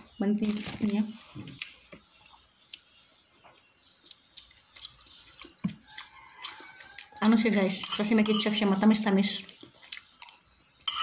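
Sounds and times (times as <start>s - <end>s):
wet chewing and lip-smacking: 1.6s - 7.2s, 9.4s - 10.9s.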